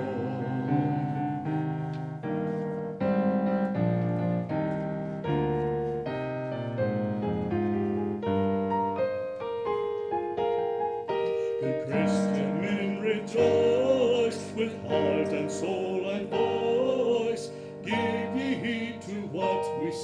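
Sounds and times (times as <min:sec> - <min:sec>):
piano chords: 0:00.0 - 0:20.0.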